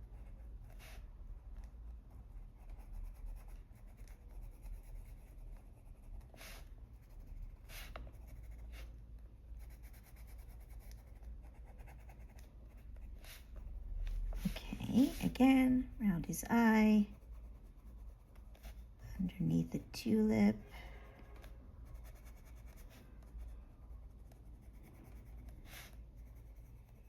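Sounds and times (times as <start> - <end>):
pencil scratching on paper: 0.0 - 27.0.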